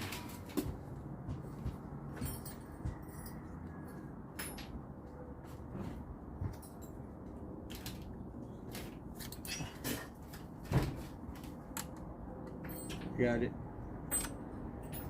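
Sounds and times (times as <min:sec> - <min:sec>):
metal tools clinking and rattling: 0:02.2 - 0:03.5, 0:09.1 - 0:10.2, 0:11.8 - 0:13.4, 0:14.1 - 0:15.0.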